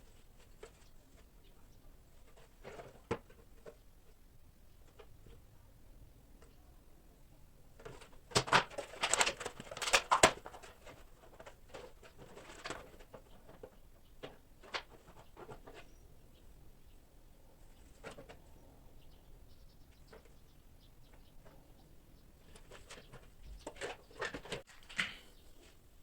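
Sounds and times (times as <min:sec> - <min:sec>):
objects being handled: 0:22.4 - 0:25.8.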